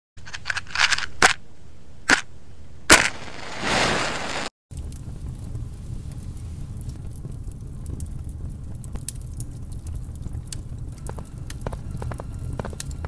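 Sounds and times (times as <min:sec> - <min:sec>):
faint crackles and clicks: 0:02.9 - 0:13.0
low steady rumble: 0:04.7 - 0:13.0.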